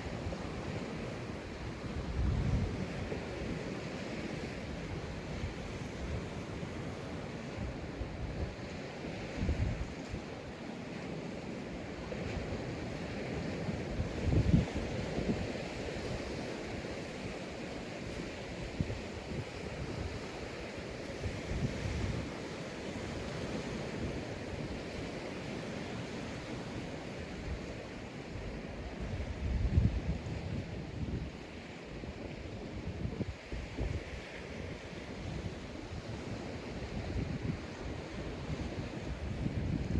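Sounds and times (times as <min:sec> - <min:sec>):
wind buffeting microphone: 0:00.0 - 0:08.6, 0:09.2 - 0:10.3, 0:12.3 - 0:17.1, 0:27.3 - 0:39.9
waves washing onto beach: 0:00.0 - 0:39.9.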